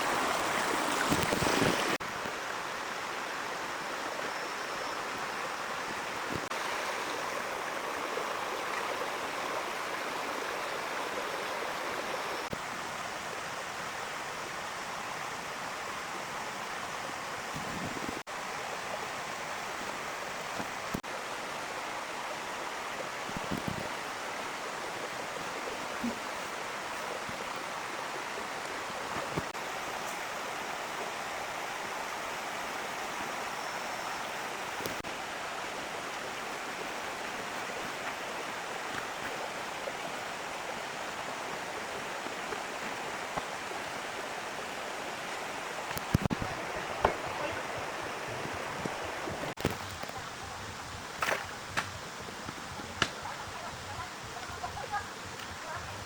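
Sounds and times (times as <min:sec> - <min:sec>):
heavy rain hissing: 0:23.0 - 0:56.0.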